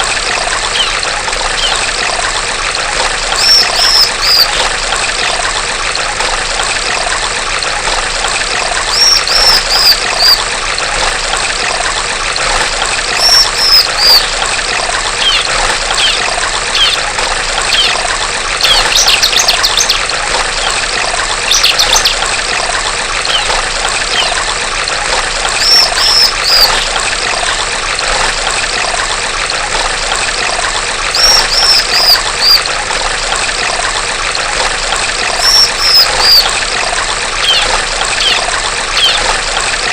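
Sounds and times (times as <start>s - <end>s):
babbling water: 0.0s - 39.9s
bird calling high falling notes: 0.7s - 1.8s, 3.4s - 4.5s, 8.9s - 10.4s, 13.2s - 14.3s, 25.6s - 26.9s, 31.1s - 32.6s, 35.4s - 36.5s, 37.4s - 39.3s
bird chattering: 0.7s - 1.9s, 3.4s - 4.6s, 8.9s - 10.4s, 13.2s - 14.3s, 15.2s - 17.0s, 17.7s - 18.0s, 21.5s - 22.2s, 23.3s - 24.4s, 25.6s - 26.9s, 31.2s - 32.6s, 35.4s - 36.6s, 37.4s - 39.3s.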